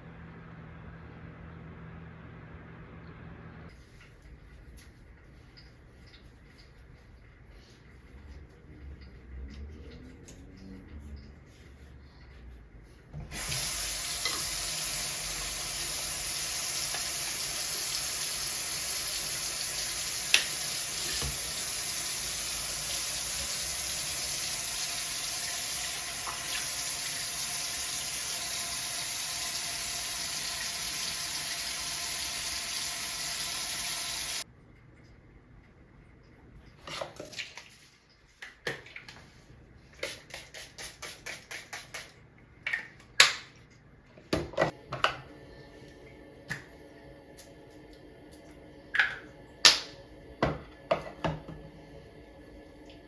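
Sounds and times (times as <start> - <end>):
tap water running into sink: 13.2 - 34.4.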